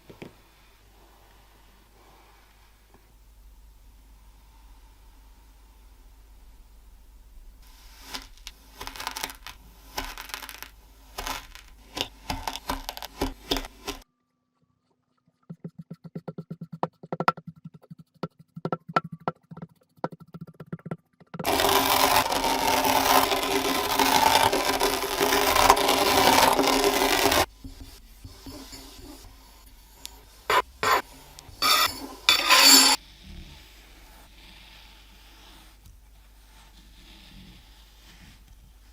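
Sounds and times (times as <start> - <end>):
sand crackling and tapping: 7.6 - 14.0, 21.4 - 32.3
sand scraping and crunching: 7.6 - 14.0, 21.4 - 27.5.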